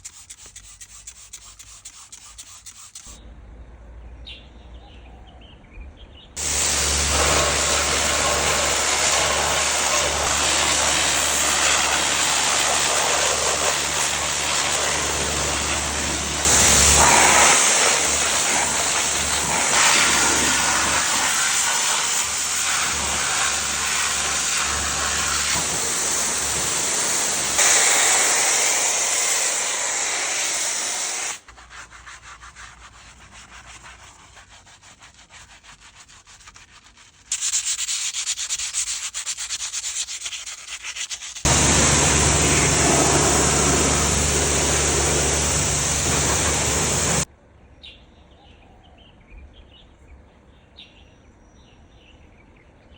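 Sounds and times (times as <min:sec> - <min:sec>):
pressure washer spraying: 0:00.0 - 0:03.2, 0:06.4 - 0:31.5, 0:37.3 - 0:47.3.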